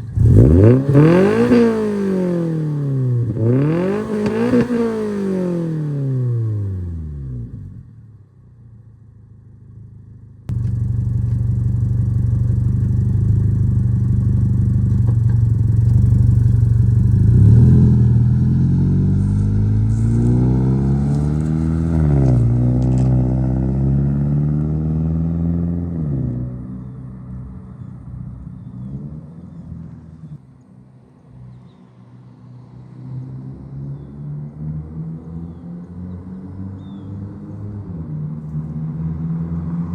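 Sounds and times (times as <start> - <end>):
car engine revving: 0.0 - 7.9, 10.5 - 26.6.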